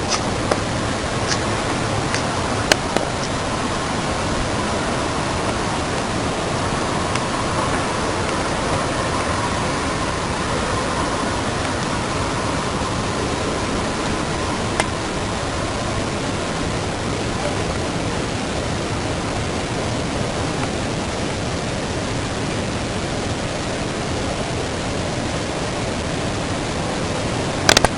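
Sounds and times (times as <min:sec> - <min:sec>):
faint steady tone: 0:00.0 - 0:27.9
jet-like rumble in sky: 0:00.0 - 0:27.9
click: 0:27.7 - 0:27.9.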